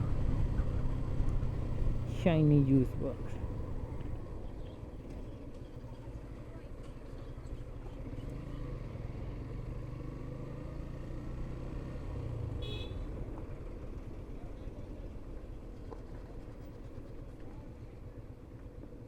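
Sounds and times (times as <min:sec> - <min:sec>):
motorcycle engine drone: 0:00.0 - 0:05.2
vehicle horn beep: 0:12.6 - 0:13.1.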